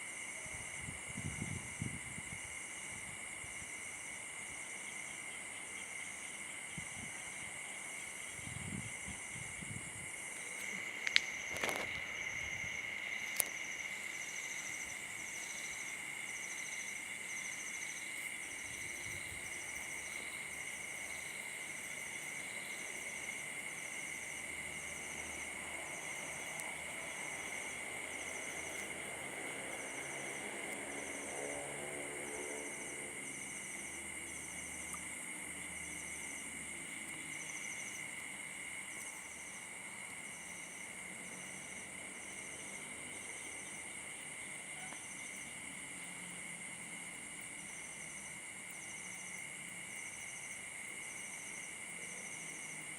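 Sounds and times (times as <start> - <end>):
insects chirring: 0.0 - 52.9.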